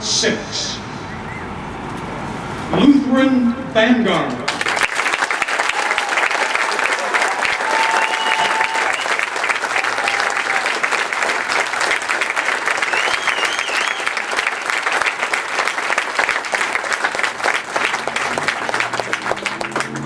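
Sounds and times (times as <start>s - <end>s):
crowd applauding: 4.5s - 20.0s.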